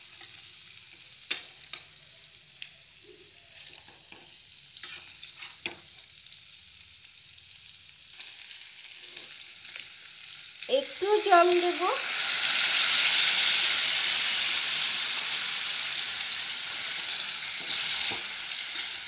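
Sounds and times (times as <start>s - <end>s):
potatoes sizzling in oil: 0.0s - 19.0s
steel spatula scraping a pan: 4.8s - 5.6s, 17.0s - 19.0s.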